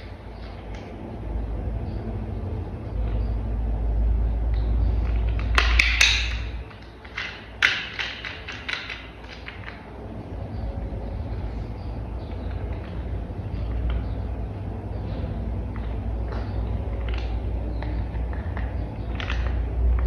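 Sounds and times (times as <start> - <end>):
low rumble: 0.0 - 7.6, 9.5 - 20.0
plastic toy parts clicking: 5.1 - 9.8.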